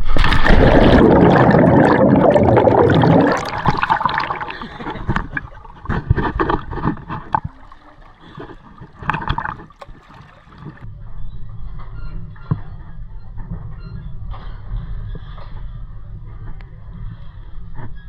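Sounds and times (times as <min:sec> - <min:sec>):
water rushing and splashing: 0:00.0 - 0:10.8.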